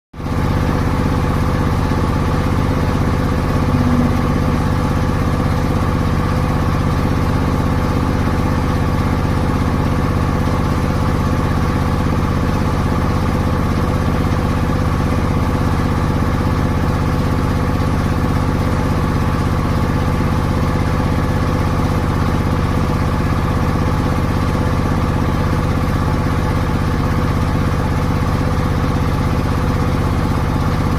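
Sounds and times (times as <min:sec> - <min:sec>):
mill machinery droning: 0:01.8 - 0:08.4.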